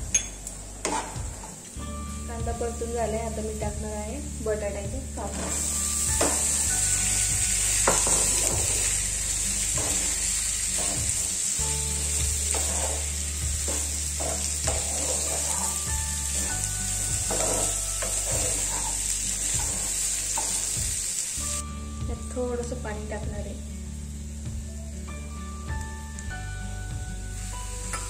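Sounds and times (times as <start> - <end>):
potatoes sizzling in hot oil: 2.7 - 28.0
wooden spatula scraping a pan: 5.2 - 6.6, 12.0 - 20.7.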